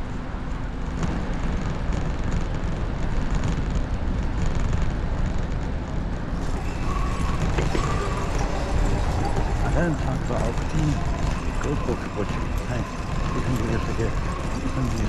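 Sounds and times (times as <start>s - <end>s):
bicycle tyres rolling: 0.0s - 15.0s
faint high tones: 6.4s - 15.0s.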